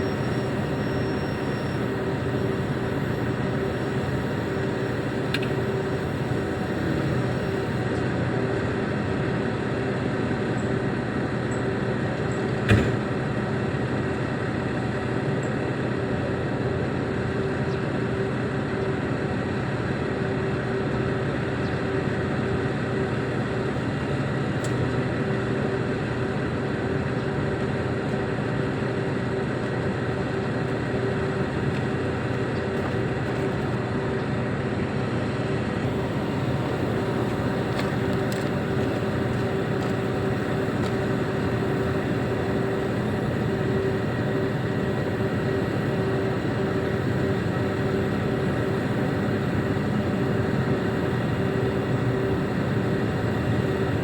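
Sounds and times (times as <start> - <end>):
constant whine: 0.0 - 54.0
diesel engine running: 0.0 - 54.0.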